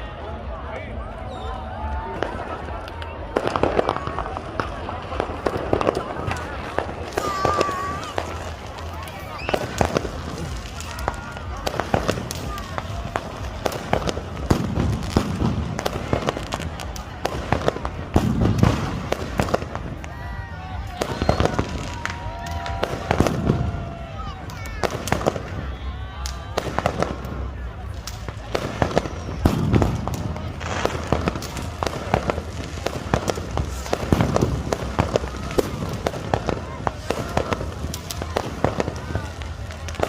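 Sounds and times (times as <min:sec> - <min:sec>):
fireworks bangs and pops: 0:02.0 - 0:40.0.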